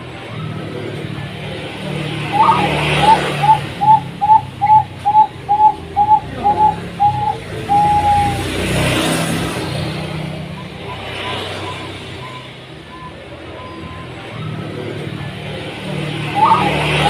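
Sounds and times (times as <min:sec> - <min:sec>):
dove cooing: 0:02.1 - 0:08.5, 0:15.9 - 0:17.0.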